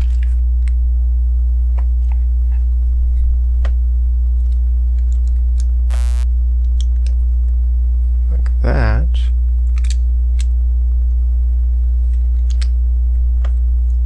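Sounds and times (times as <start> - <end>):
loud low electrical hum: 0.0 - 14.0
short buzz: 5.9 - 6.2.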